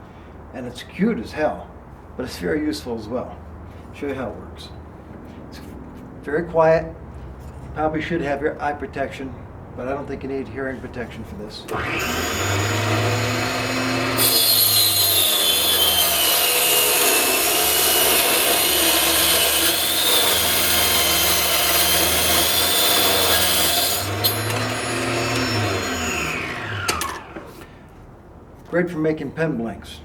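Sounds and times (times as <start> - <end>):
table saw ripping wood: 11.7 - 27.7.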